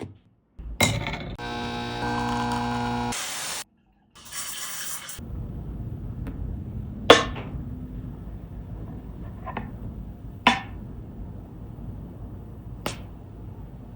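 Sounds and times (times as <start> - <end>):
hard parts knocking and clinking: 0.6 - 1.4
low steady rumble: 5.2 - 13.9.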